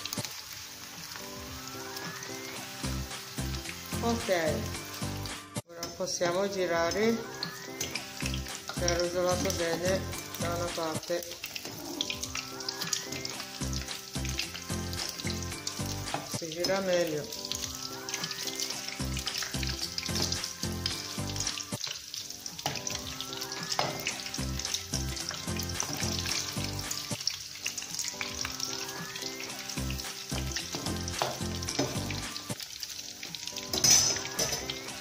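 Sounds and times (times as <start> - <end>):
meatballs sizzling in oil: 0.0 - 35.0
background music with low beat: 2.5 - 5.7.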